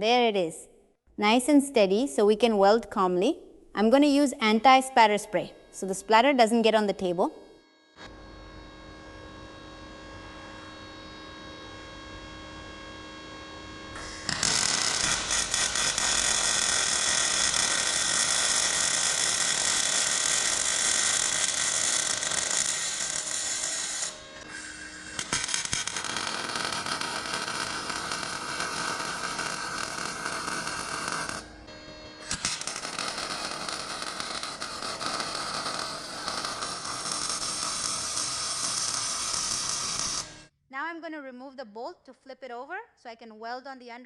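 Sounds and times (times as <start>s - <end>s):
welding arc crackling hiss: 14.0s - 31.6s, 32.2s - 40.5s.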